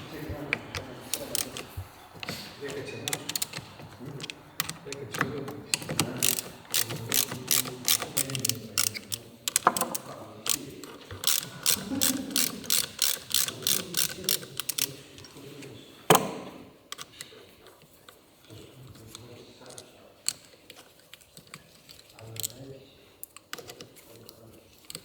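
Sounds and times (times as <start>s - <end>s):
ratchet wrench clicking: 1.0s - 10.6s, 11.2s - 15.0s.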